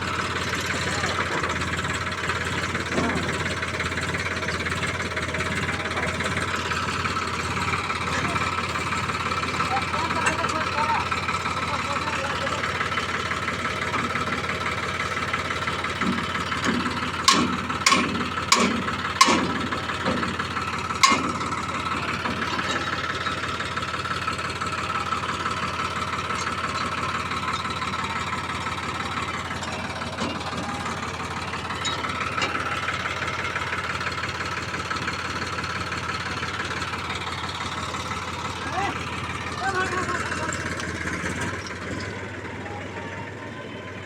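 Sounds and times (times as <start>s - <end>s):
tractor engine idling: 0.0s - 44.0s
sharp knocks: 17.3s - 19.6s.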